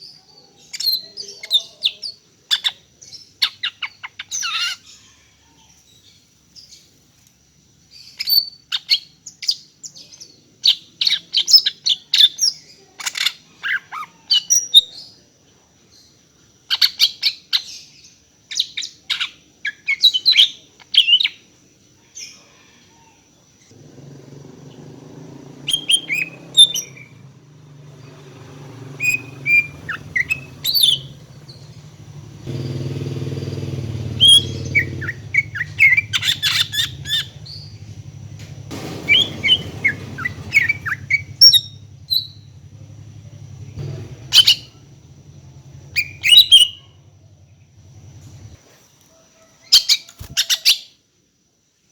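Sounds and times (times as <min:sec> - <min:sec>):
bird chirping and whistling: 0:25.6 - 0:27.2, 0:29.0 - 0:31.7, 0:34.2 - 0:37.8, 0:38.8 - 0:42.5, 0:44.3 - 0:44.8, 0:46.0 - 0:46.8.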